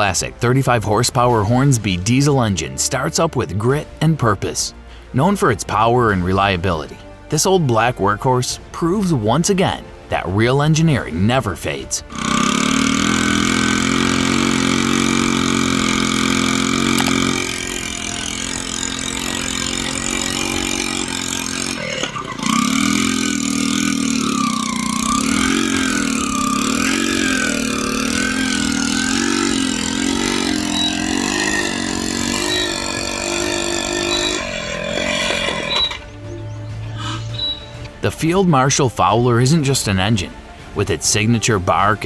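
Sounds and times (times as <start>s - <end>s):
diesel engine running: 12.1s - 37.9s.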